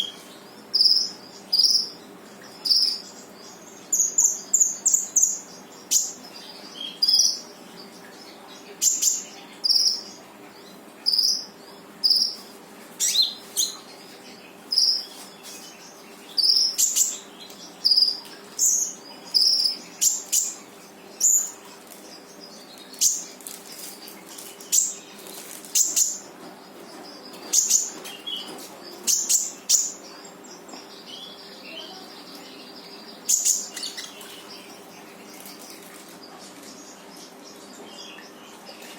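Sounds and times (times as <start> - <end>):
faint steady hum: 0.0 - 38.9
insects: 0.1 - 7.5.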